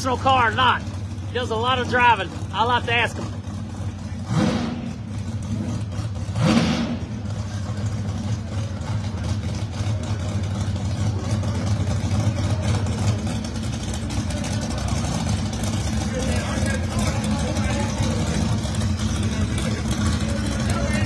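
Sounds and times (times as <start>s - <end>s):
race car engines idling: 0.0s - 21.0s
engine rev blip: 4.2s - 7.3s.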